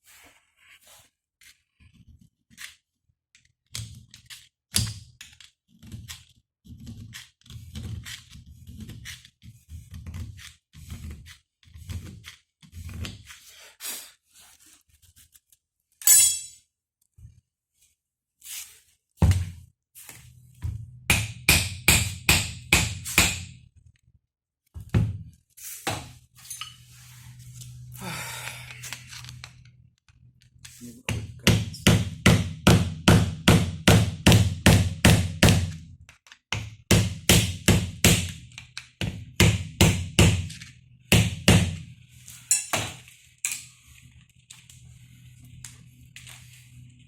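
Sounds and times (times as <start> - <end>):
hammer striking metal: 16.0 - 16.6, 21.1 - 23.6.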